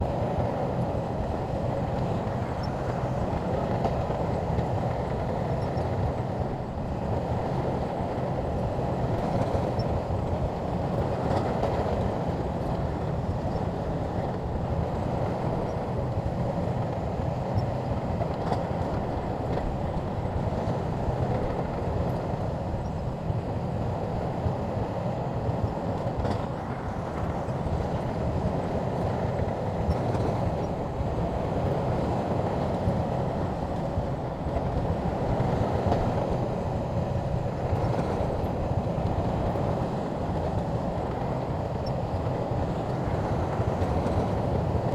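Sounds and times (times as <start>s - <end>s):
bulldozer diesel engine drone: 0.0s - 44.9s.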